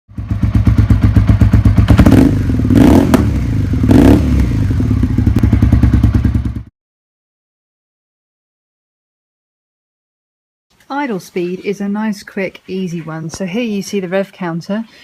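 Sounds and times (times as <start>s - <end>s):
motorcycle engine running: 0.1s - 6.7s.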